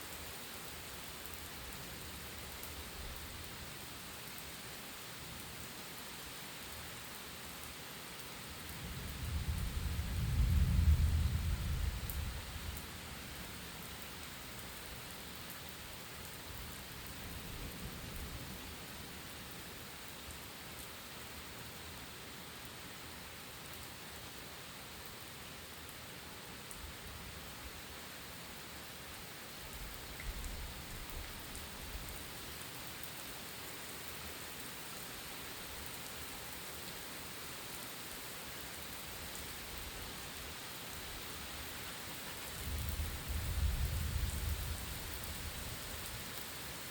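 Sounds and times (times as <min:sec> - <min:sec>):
distant thunder rumbles: 0:09.3 - 0:12.3
heavy rain hissing: 0:27.0 - 0:46.9.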